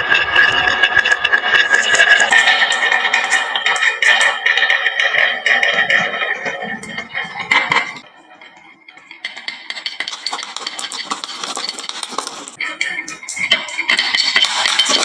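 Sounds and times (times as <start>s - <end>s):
marbles clattering down wooden run: 9.8s - 12.6s.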